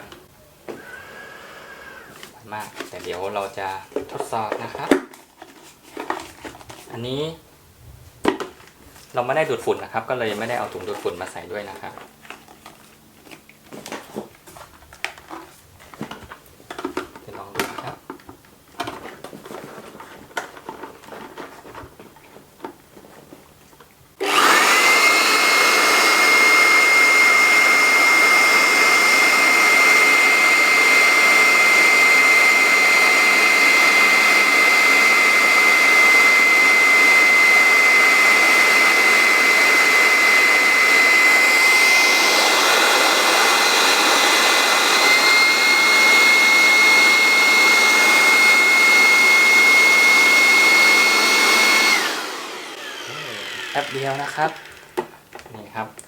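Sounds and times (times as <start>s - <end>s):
electric blower motor whine: 0.0s - 2.3s, 24.2s - 55.2s.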